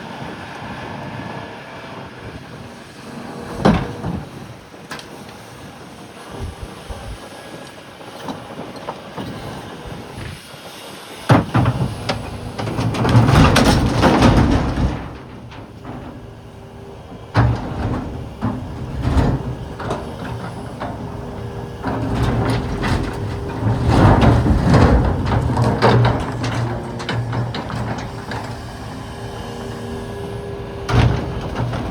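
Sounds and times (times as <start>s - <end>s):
excavator engine running: 2.6s - 10.4s, 11.3s - 31.9s
heavy knocks: 6.4s - 7.2s
rock bang: 6.4s - 7.2s
rock clattering and scraping: 6.4s - 7.2s.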